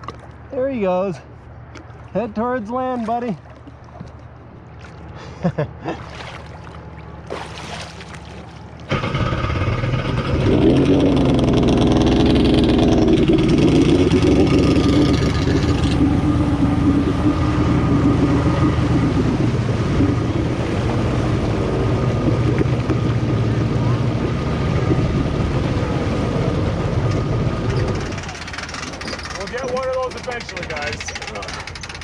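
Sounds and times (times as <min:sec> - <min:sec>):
jet ski engine revving: 0:08.4 - 0:32.0.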